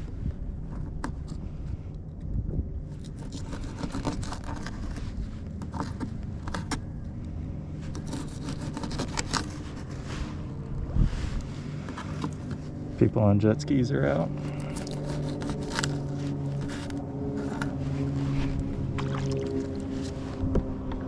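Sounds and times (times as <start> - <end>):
gear clicking and scraping: 0.6 - 13.1, 14.0 - 21.0
jet ski engines droning: 9.2 - 21.0.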